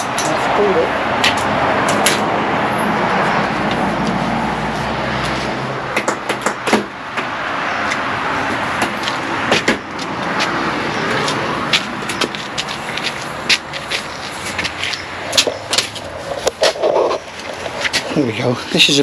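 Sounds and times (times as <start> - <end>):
outdoor noise: 0.0 - 19.0
vehicle engine rumble: 0.0 - 19.0
knocks of window frames: 5.9 - 7.4.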